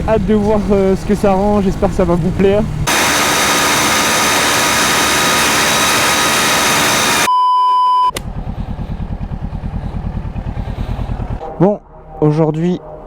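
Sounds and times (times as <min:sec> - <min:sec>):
short beep: 0:07.1 - 0:08.2
motorcycle engine idling: 0:08.2 - 0:11.4.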